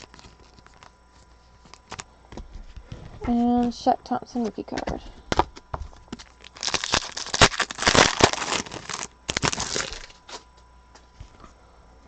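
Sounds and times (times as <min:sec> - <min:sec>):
plastic wrapper crinkling and tearing: 0:00.0 - 0:01.0, 0:01.6 - 0:02.1, 0:06.2 - 0:10.4.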